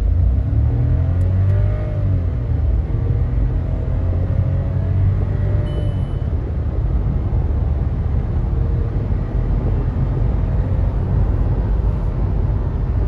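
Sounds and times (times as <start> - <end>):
car engine accelerating hard: 0.0 - 5.8
road rumble: 0.0 - 13.0.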